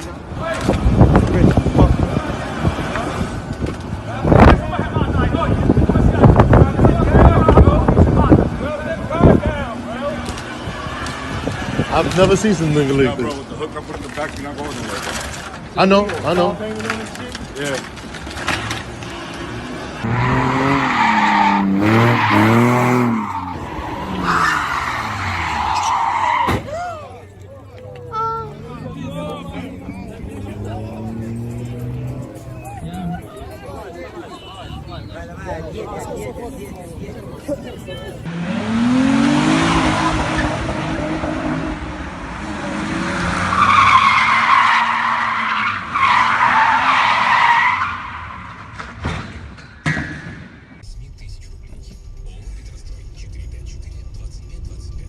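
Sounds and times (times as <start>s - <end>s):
tyres squealing: 17.6s - 27.2s, 43.4s - 48.6s
car engine revving: 18.3s - 26.4s, 28.4s - 33.4s, 38.2s - 49.0s.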